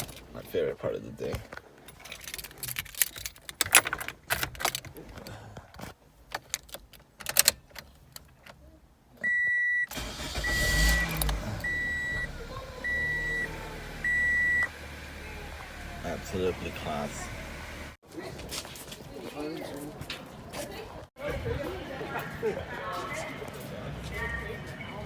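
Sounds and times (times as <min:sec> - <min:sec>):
car keys rattling: 0:00.0 - 0:08.6, 0:09.9 - 0:17.9
warning chime beeping: 0:09.3 - 0:14.7
car engine starting: 0:09.9 - 0:18.0.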